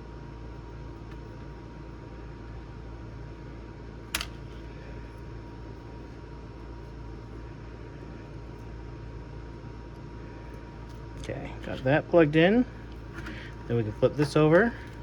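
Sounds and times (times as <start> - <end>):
air conditioner hum: 0.0 - 15.0
sharp connector click: 4.1 - 4.4.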